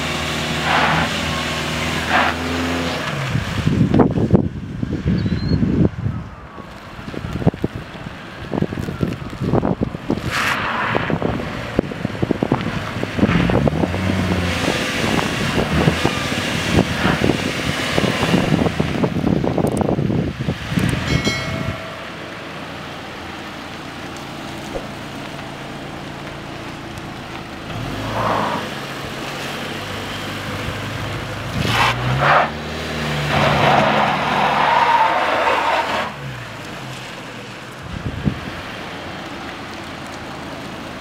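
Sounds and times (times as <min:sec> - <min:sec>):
wind buffeting microphone: 0:03.2 - 0:22.3, 0:37.8 - 0:38.8
vehicle engine running: 0:18.5 - 0:31.6.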